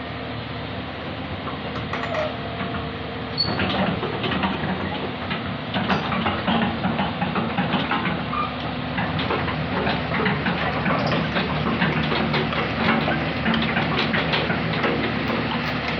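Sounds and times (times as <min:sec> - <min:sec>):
sharp clicks and knocks: 0:01.8 - 0:02.7.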